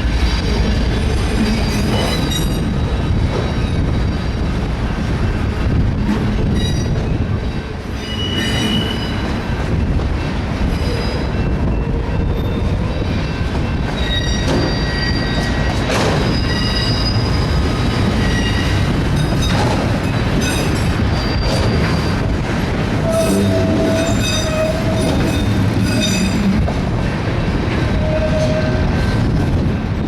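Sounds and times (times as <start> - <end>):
train wheels rumbling on rails: 0.0 - 30.0
wheels squealing: 10.8 - 22.3, 23.0 - 26.6.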